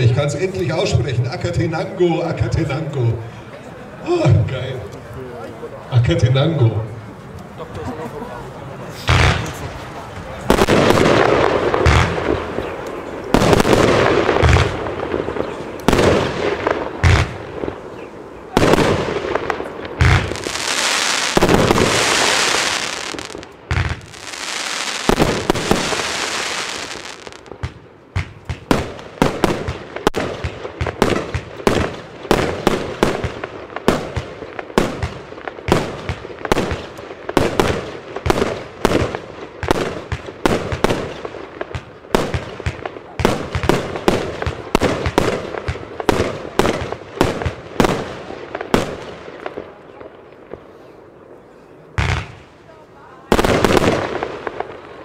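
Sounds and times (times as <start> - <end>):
rapid firework shots and bursts: 9.1 - 9.6, 10.4 - 17.9, 18.5 - 50.6, 53.3 - 55.0
firework thuds: 9.1 - 12.6, 18.5 - 49.6
firework hissing: 20.2 - 27.5.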